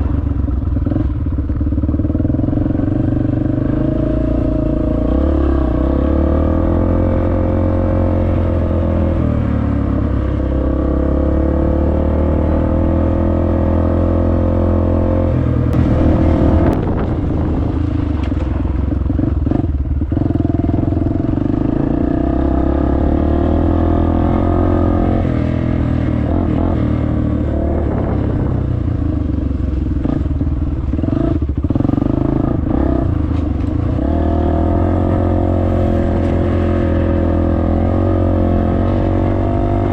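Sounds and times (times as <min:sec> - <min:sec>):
dirt bike engine revving: 0:00.8 - 0:29.2, 0:30.0 - 0:39.9
engine rattling: 0:15.1 - 0:22.8.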